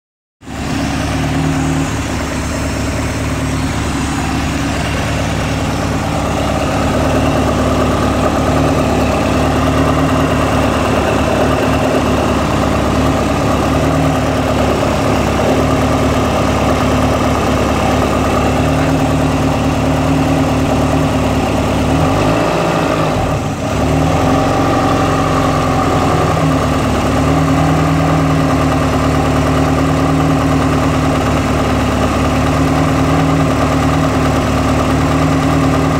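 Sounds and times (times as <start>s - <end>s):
car engine idling: 0.4s - 35.9s.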